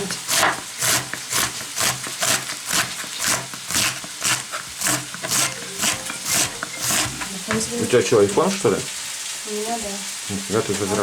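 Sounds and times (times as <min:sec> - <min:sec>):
knife slicing cabbage on board: 0:00.1 - 0:07.2.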